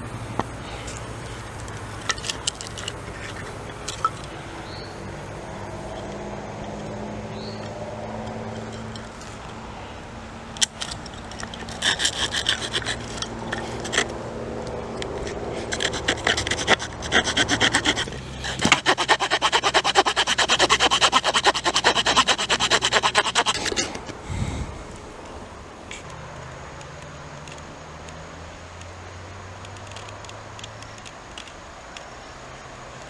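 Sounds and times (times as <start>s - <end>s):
hand saw cutting wood: 0.0s - 6.8s, 10.6s - 24.2s.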